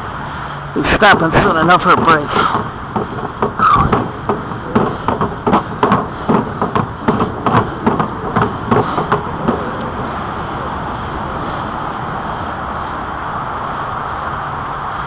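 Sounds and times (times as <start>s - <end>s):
bicycle rolling: 0.8s - 15.0s
knocks and rattles: 0.9s - 10.3s.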